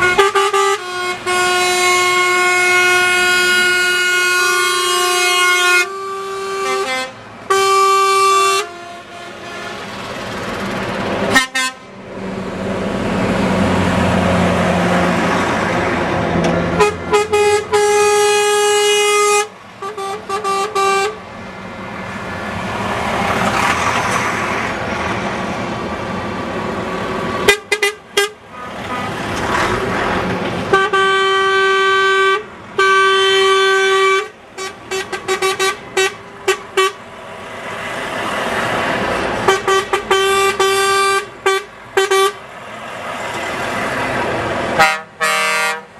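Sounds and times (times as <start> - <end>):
truck air horns honking: 0.0 - 10.6, 11.2 - 12.0, 16.7 - 21.3, 27.4 - 29.3, 30.6 - 37.1, 39.3 - 42.5, 44.7 - 45.9
trucks driving past: 0.0 - 45.9.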